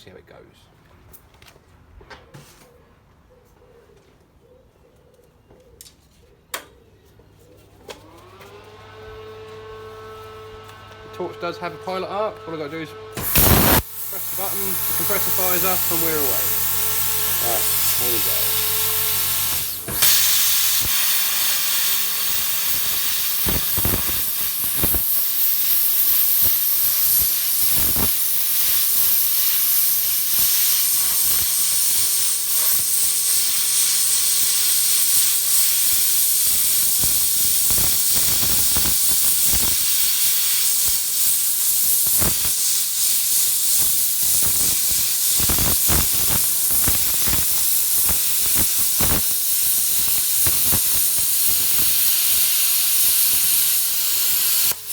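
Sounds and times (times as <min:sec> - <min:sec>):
plasma arc crackles: 0:13.2 - 0:54.9
plasma cutter hissing: 0:13.2 - 0:54.9.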